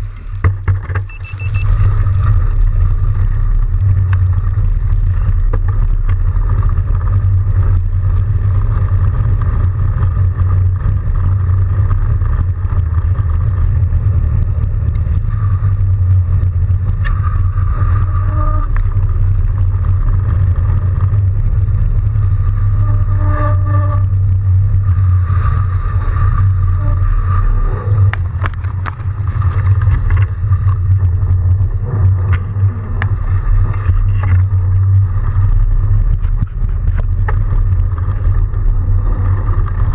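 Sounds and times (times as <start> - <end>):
bike riding through snow rumble: 0.0 - 39.9
thin steady whine: 0.0 - 39.9
brief pitched tones: 1.1 - 1.8.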